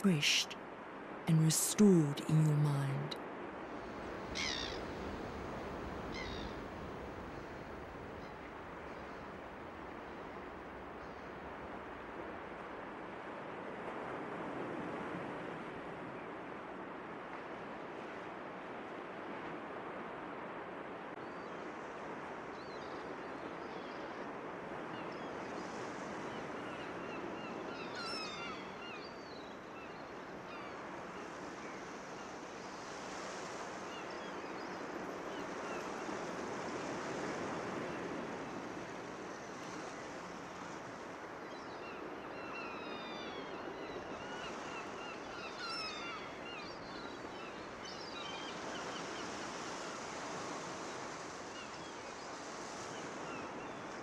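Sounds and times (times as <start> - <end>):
ocean waves washing onto beach: 29.5 - 54.0.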